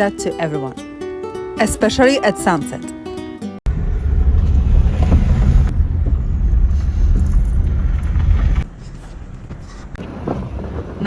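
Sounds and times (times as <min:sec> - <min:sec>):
minivan rumbling on dirt road: 0:03.7 - 0:11.0.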